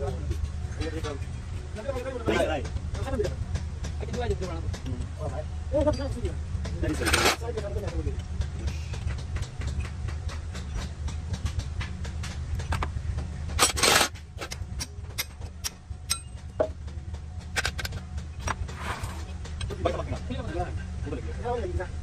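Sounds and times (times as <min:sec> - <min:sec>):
steady low hum: 0:00.0 - 0:22.0
metal clinks and knocks: 0:05.8 - 0:20.1.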